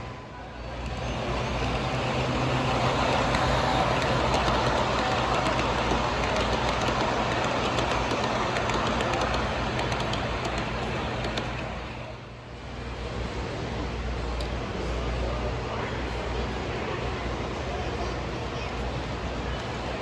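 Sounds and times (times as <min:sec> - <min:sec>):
model train rumbling on track: 0:00.0 - 0:20.0.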